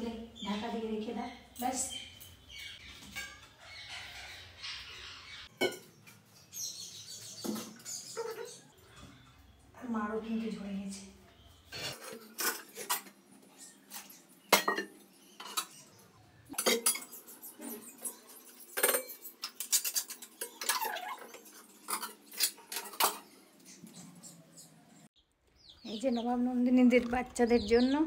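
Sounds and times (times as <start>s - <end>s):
metal pots and utensils clattering: 2.9s - 4.1s, 5.4s - 6.3s, 11.7s - 23.4s.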